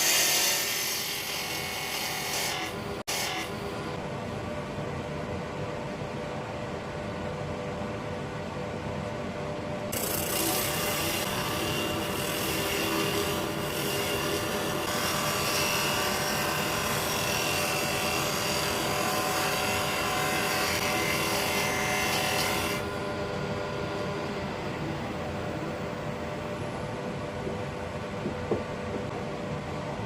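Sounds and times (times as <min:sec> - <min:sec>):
lathe and dust extraction drone: 0:09.9 - 0:29.9.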